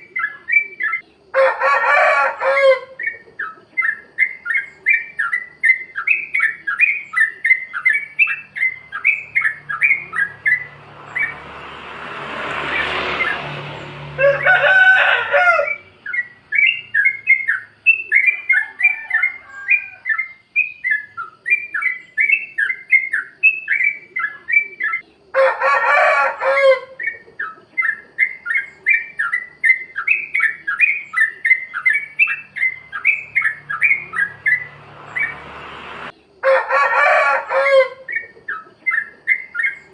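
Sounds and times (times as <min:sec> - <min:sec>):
bird chattering song: 0:00.0 - 0:01.4, 0:02.8 - 0:11.8, 0:15.5 - 0:25.4, 0:26.9 - 0:36.4, 0:37.9 - 0:39.9
harsh bird call: 0:00.0 - 0:39.9.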